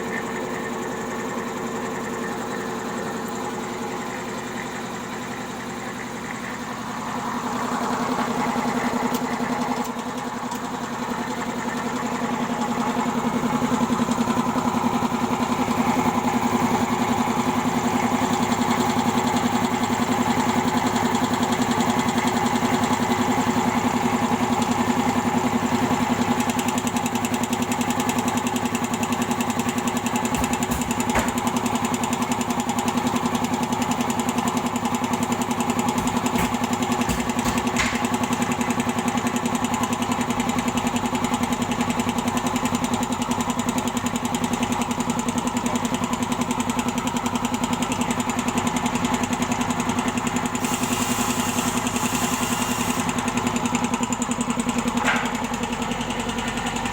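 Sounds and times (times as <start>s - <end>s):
air compressor running: 0.0s - 42.0s, 49.3s - 56.9s.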